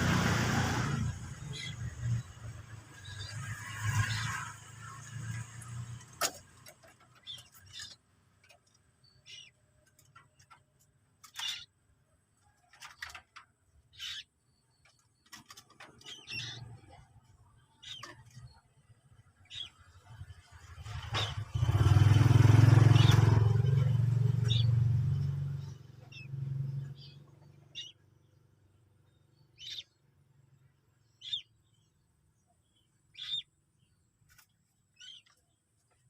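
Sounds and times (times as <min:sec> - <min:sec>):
motor vehicle passing loudly: 0:00.0 - 0:06.2, 0:20.1 - 0:27.9
quiet road traffic: 0:00.0 - 0:36.0
high bird chirps: 0:11.3 - 0:11.8, 0:32.8 - 0:33.5.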